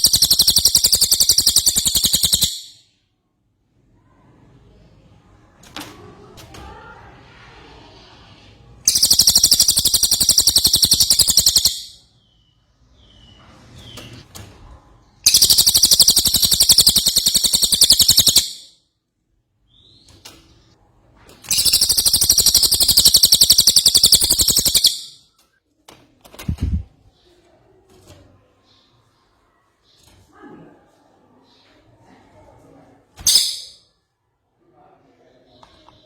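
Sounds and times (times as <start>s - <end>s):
songbird trilling: 0.0s - 2.8s, 8.9s - 12.0s, 15.3s - 18.7s, 21.5s - 25.2s.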